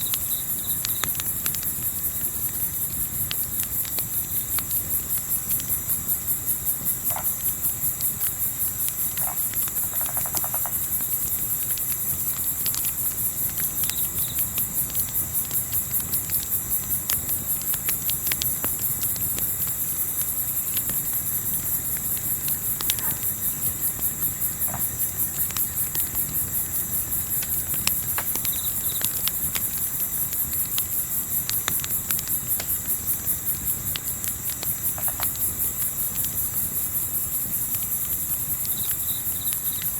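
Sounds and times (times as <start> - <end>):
campfire crackling: 0.0 - 39.9
crickets chirping: 0.0 - 39.9
night animal calls: 22.9 - 23.3.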